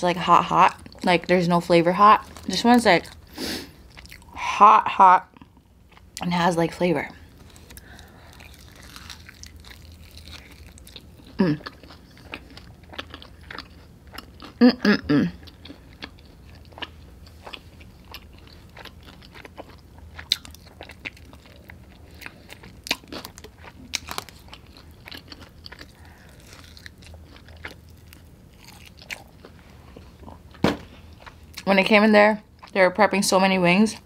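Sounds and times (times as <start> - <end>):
chewing and biting chicken wings: 7.4 - 14.6, 15.4 - 30.5.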